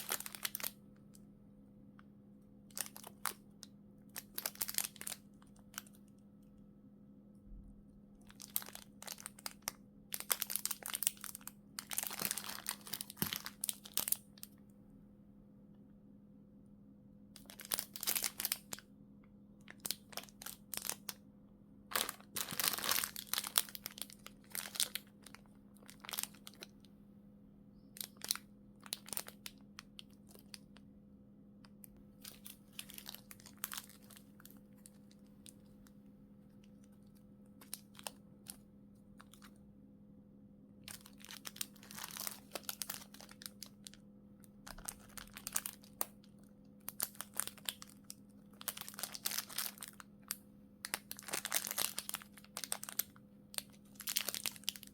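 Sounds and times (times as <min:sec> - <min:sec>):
plastic film crinkling: 0:00.0 - 0:00.8, 0:02.7 - 0:03.4, 0:04.2 - 0:06.0, 0:08.2 - 0:14.5, 0:17.4 - 0:18.8, 0:19.7 - 0:21.2, 0:21.9 - 0:26.7, 0:28.0 - 0:30.7, 0:32.2 - 0:35.9, 0:36.9 - 0:38.6, 0:40.8 - 0:54.9
faint steady hum: 0:00.0 - 0:54.9.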